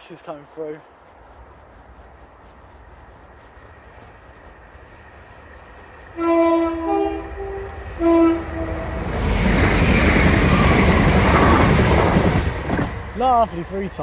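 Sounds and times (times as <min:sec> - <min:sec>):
train passing rushing: 0:01.4 - 0:14.0
three-tone train horn: 0:06.2 - 0:09.1.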